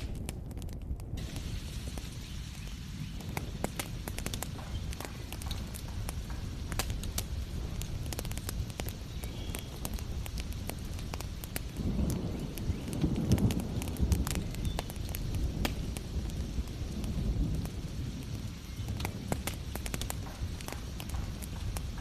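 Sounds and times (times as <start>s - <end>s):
fireplace fire crackling: 0.0s - 22.0s.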